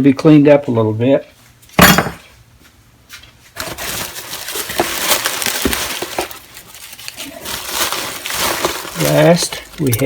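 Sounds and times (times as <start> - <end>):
crackly rustling: 3.2 - 10.0
metal hand tools clinking: 9.0 - 10.0.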